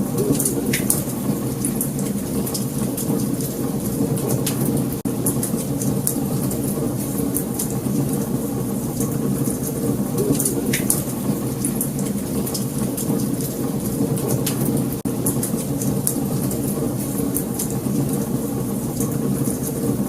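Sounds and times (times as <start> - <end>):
low rumble of flames: 0.0 - 20.0
wood fire crackling and popping: 0.1 - 20.0.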